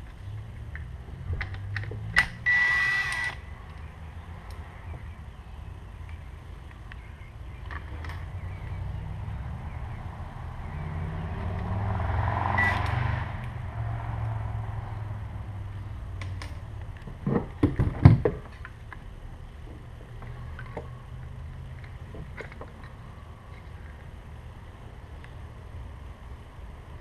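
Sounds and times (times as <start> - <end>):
sharp knocks and clatter: 16.2 - 18.6.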